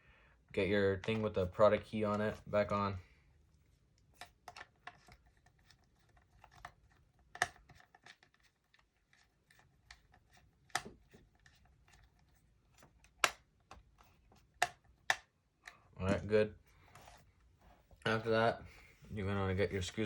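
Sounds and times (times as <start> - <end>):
plastic cover clicking and scraping: 4.0 - 15.8.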